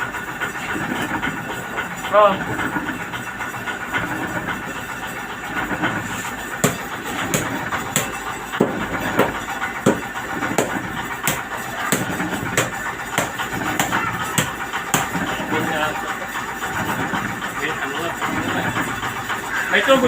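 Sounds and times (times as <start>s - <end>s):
engine running: 0.0s - 20.0s
sharp knocks: 6.6s - 15.3s.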